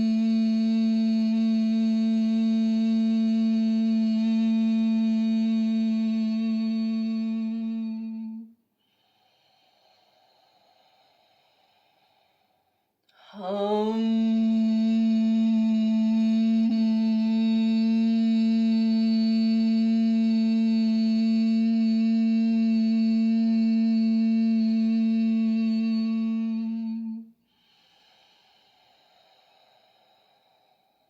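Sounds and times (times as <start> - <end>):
woman humming steady note: 0.0 - 8.5, 13.1 - 27.4.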